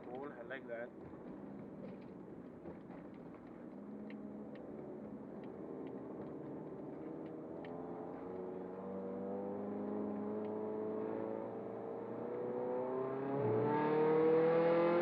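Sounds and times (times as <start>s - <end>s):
faint ticks: 7.2s - 7.8s
car engine accelerating: 7.3s - 15.0s.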